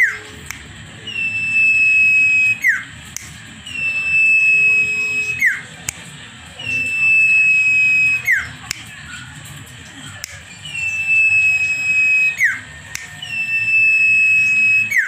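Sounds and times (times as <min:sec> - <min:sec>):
songbird whistled calls: 0:00.0 - 0:03.0, 0:03.6 - 0:05.8, 0:06.6 - 0:09.4, 0:10.0 - 0:15.0.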